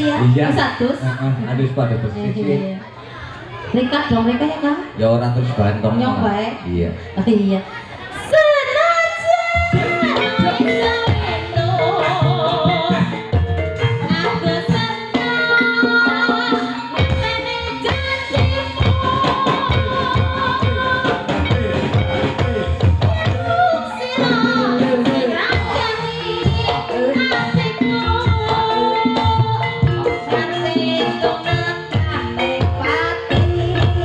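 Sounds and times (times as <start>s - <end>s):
hand drums steady beat: 9.6s - 34.0s
pitched melodic instruments: 9.6s - 34.0s.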